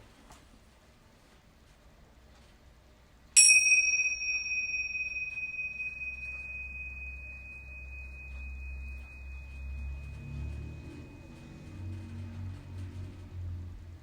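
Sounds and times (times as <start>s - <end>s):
metal chime ringing: 3.4s - 13.2s.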